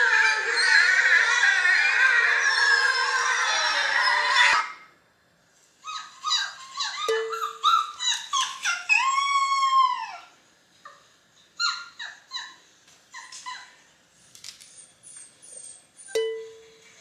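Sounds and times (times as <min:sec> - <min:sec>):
dog howling: 0:00.0 - 0:04.8, 0:06.8 - 0:10.3
dog yipping: 0:00.0 - 0:04.8, 0:05.8 - 0:10.3, 0:11.6 - 0:13.9, 0:14.7 - 0:16.2.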